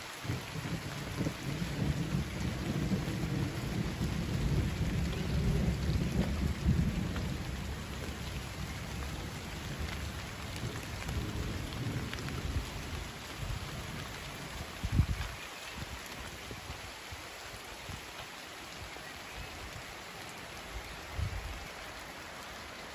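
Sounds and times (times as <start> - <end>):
steady rain falling: 0.0 - 22.9
rolling thunder rumble: 0.2 - 15.2.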